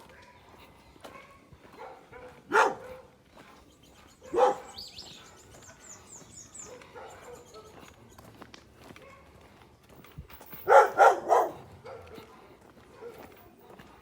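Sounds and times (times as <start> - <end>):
dog barking: 0.0 - 3.2, 4.2 - 5.0, 6.6 - 7.9, 9.0 - 9.4, 10.6 - 12.3, 12.9 - 13.4.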